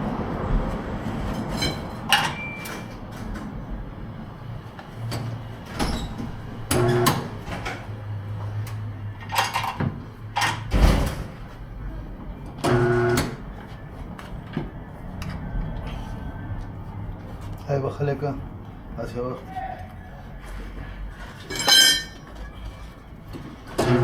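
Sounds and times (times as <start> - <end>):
metal tools clanking: 9.2 - 9.8, 21.2 - 23.0
machine running in bursts: 12.6 - 13.5, 23.8 - 24.0.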